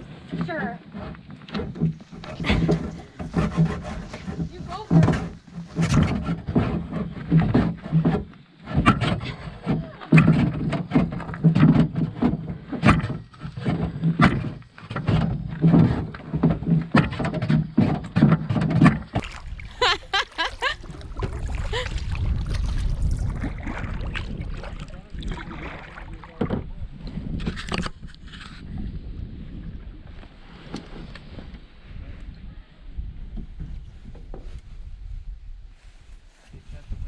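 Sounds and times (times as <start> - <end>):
canoe hull knocks and thumps: 0.0 - 31.6
rushing water and wind: 19.2 - 28.1.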